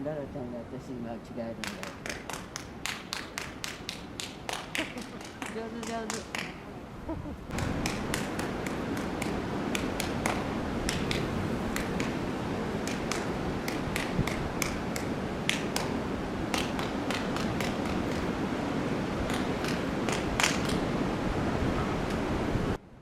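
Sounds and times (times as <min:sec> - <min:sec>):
wind noise: 0:00.6 - 0:23.0
orangutan clapping hands: 0:01.6 - 0:06.7, 0:07.5 - 0:12.2, 0:12.8 - 0:18.4, 0:19.2 - 0:20.9.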